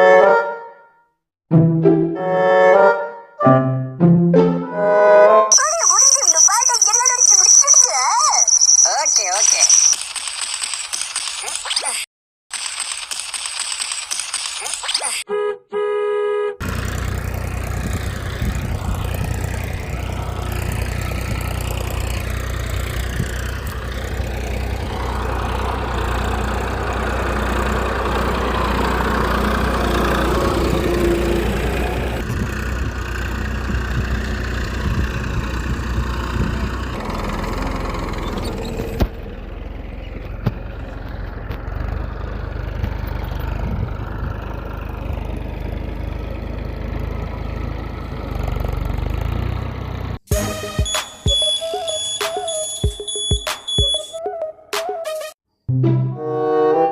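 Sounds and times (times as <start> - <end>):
small engine humming: 16.6 - 50.5.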